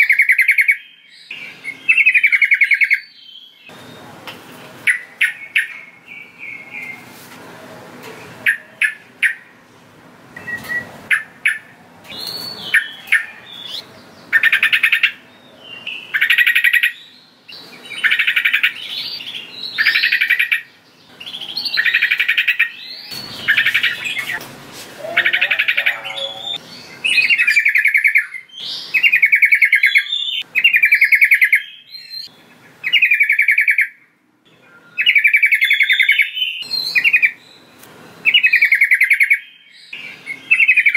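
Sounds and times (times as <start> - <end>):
bulbul calling: 0.0 - 4.0, 8.4 - 9.5, 10.4 - 24.4, 25.0 - 34.0.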